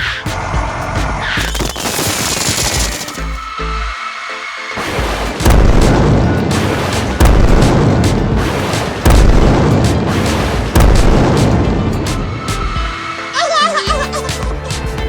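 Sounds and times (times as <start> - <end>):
background music: 0.0 - 15.0
loud booms: 4.8 - 13.0.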